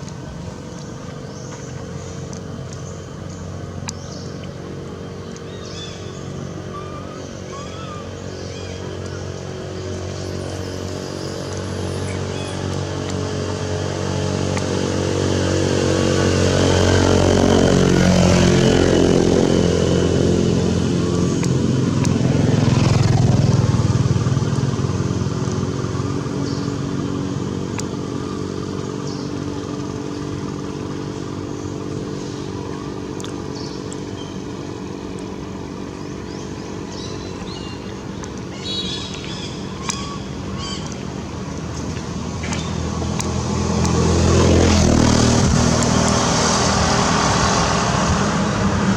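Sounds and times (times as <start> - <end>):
motorcycle engine passing by: 5.5 - 37.8, 38.5 - 48.9.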